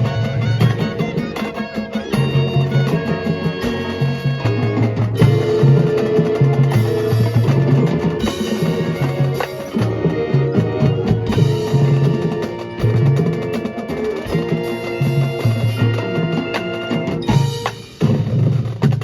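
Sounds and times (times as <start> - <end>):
drums and sharp percussion: 0.0 - 19.0
marching band playing: 0.0 - 19.0.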